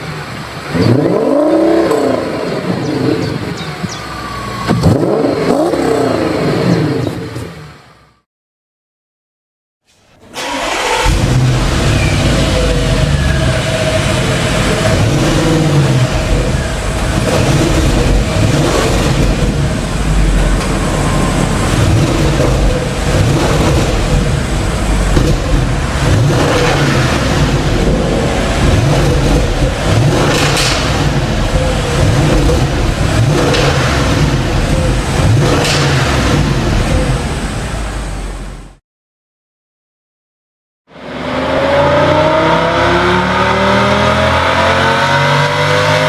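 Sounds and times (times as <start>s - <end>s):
car engine and exhaust revving: 0.0s - 8.2s, 10.3s - 38.8s, 40.9s - 46.0s.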